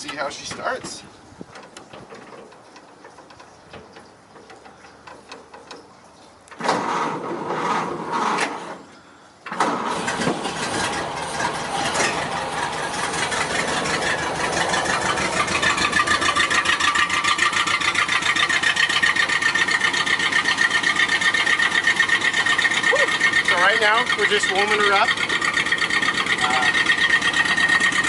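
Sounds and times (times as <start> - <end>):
car engine cold starting: 6.5 - 28.0.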